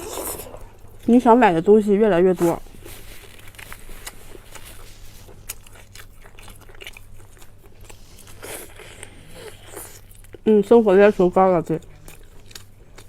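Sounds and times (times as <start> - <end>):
steady low hum: 0.0 - 13.0
person chewing food: 2.6 - 10.5, 11.8 - 13.0.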